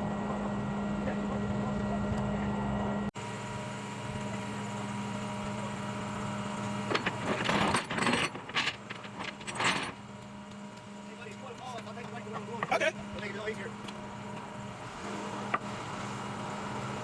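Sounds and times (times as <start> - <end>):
truck engine idling: 3.2 - 7.3
clattering and rustling: 6.9 - 10.0.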